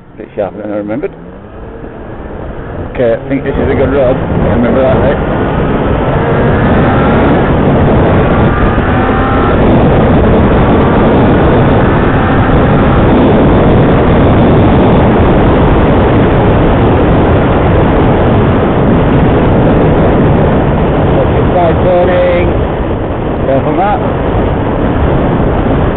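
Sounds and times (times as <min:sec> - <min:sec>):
motorcycle engine accelerating: 0:00.0 - 0:25.9
wind rush on microphone: 0:00.0 - 0:25.9.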